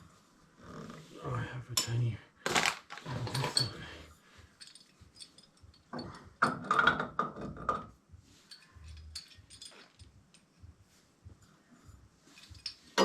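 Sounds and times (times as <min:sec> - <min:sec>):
tools and metal parts clicking: 0:02.5 - 0:03.8, 0:04.6 - 0:07.1, 0:08.5 - 0:10.5, 0:12.4 - 0:13.0.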